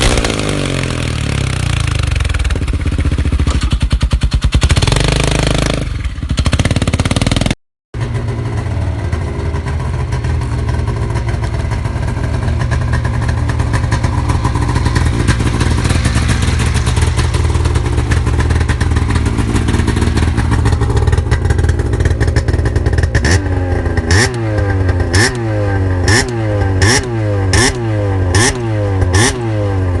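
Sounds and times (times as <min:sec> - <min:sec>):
engine revving: 0:00.0 - 0:03.8, 0:04.6 - 0:30.0
different engine: 0:00.0 - 0:30.0
snowmobile engine idling: 0:08.0 - 0:25.2.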